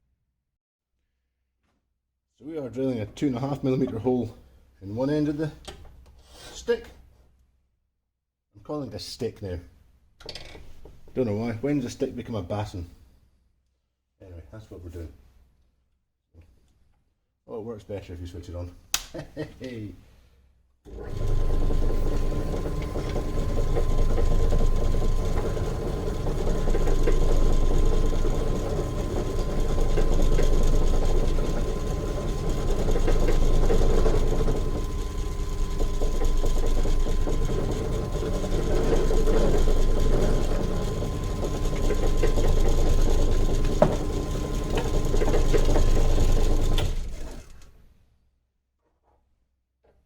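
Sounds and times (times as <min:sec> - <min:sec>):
pillar drill boring into wood: 0:20.9 - 0:47.6.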